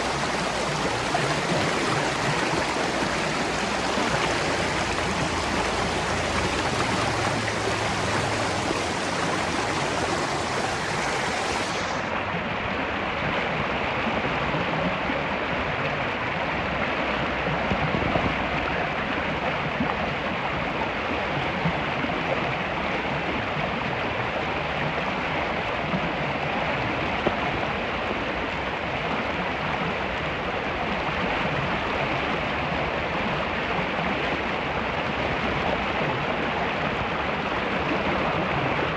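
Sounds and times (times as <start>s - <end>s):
spring water running: 0.0s - 12.1s.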